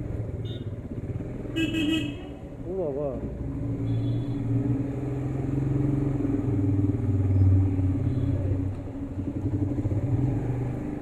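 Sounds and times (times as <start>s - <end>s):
motorcycle engine running: 5.2s - 11.0s.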